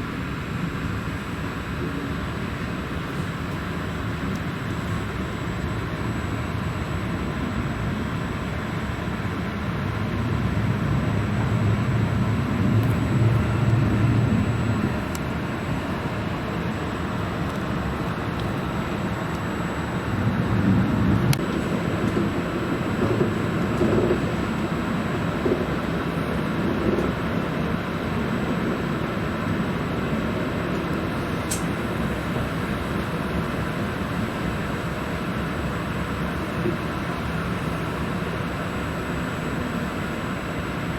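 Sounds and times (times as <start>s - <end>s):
train rumble and rush: 6.8s - 34.3s.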